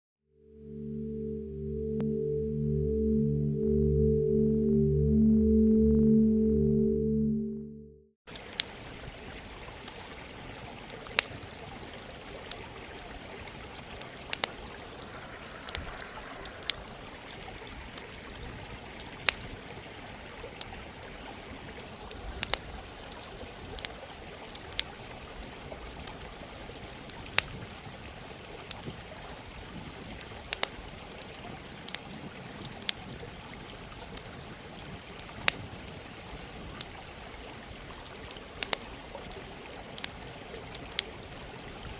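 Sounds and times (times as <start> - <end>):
campfire crackling: 8.3 - 20.8, 21.8 - 29.0, 30.2 - 32.0, 38.2 - 41.8
running water: 8.3 - 41.9.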